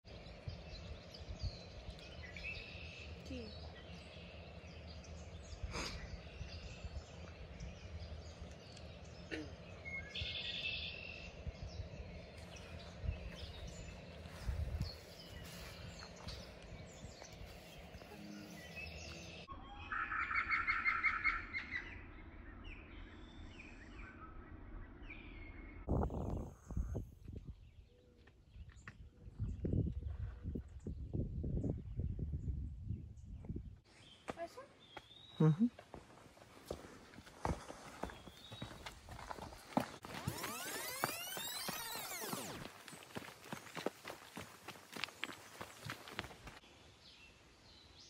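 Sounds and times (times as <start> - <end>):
wild birds singing and calling: 0.1 - 27.0, 37.4 - 48.0.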